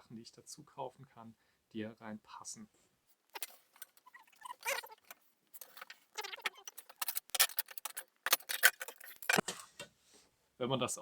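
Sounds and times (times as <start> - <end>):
strap clicks and scrapes: 3.3 - 9.9
aluminium parts clinking: 3.4 - 9.5.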